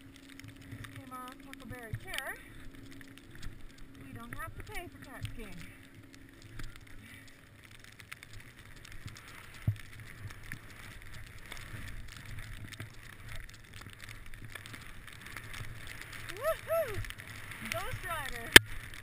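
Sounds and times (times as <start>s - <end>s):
skis sliding through snow: 6.4s - 19.0s.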